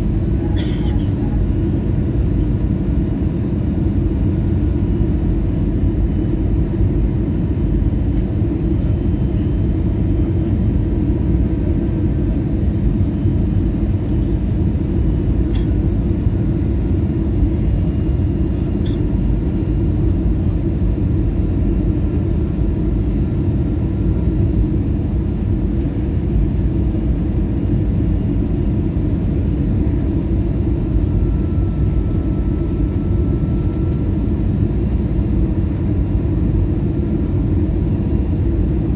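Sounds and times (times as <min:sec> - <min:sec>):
airliner cabin rumble: 0:00.0 - 0:38.9
faint high whine: 0:30.2 - 0:35.2.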